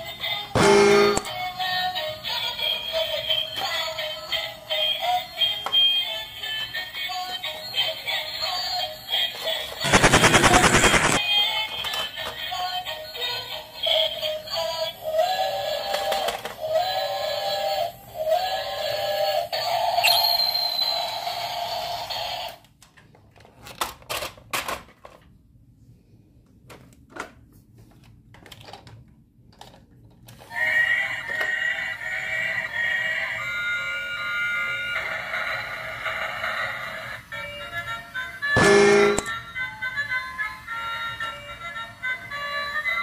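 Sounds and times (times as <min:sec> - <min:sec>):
toy train electronic melodies: 0:00.0 - 0:09.8, 0:11.1 - 0:22.6, 0:30.4 - 0:43.0.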